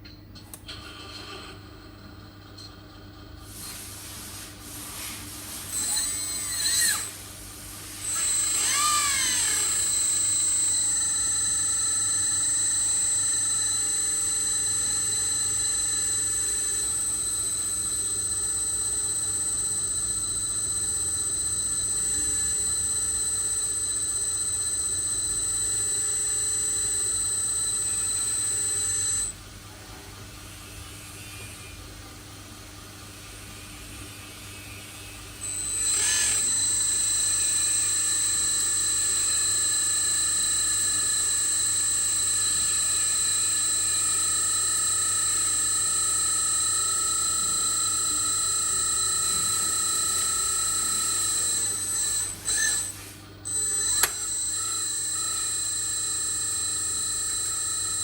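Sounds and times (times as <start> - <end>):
electric motor whining: 5.7 - 7.2, 8.0 - 29.4, 35.4 - 58.0.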